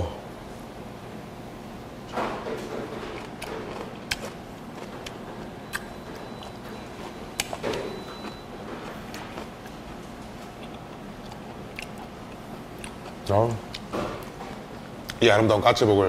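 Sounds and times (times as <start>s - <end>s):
chewing: 2.6s - 15.2s.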